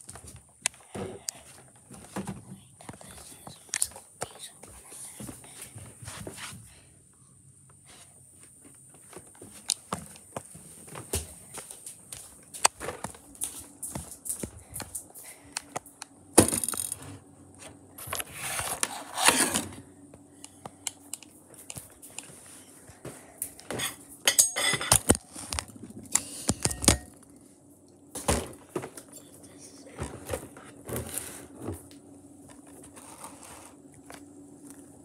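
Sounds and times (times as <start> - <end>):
rustling or crinkling: 25.0 - 26.6, 29.8 - 35.0.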